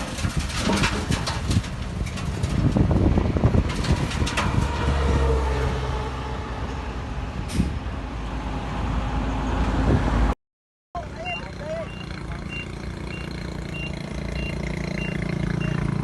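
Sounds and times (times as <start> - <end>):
metal knocks and clatter: 0.0 - 5.2.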